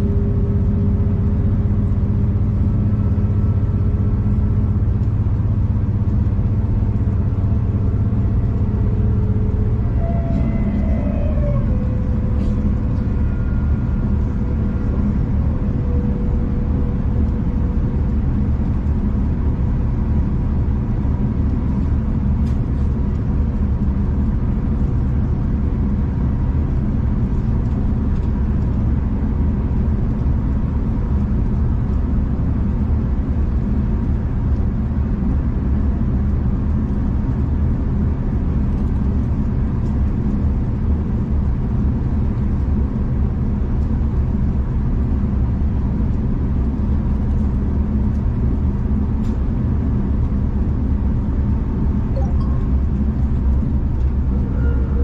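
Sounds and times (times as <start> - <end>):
faint steady hum: 0.0 - 25.9, 43.6 - 55.0
train rumble from inside carriage: 0.0 - 55.0.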